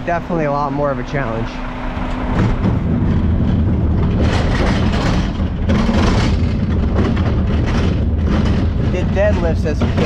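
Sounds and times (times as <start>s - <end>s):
garbage truck diesel engine: 0.0s - 10.0s.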